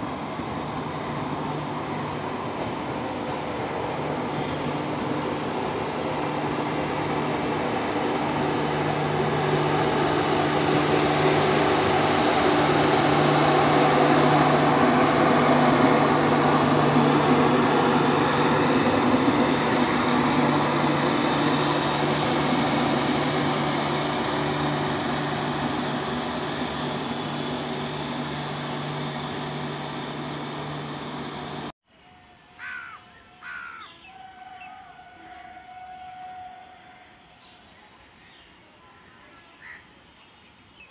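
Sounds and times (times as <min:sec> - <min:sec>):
train rumble and rail clatter: 0:00.0 - 0:31.7, 0:34.4 - 0:39.8
crow cawing: 0:32.6 - 0:33.9.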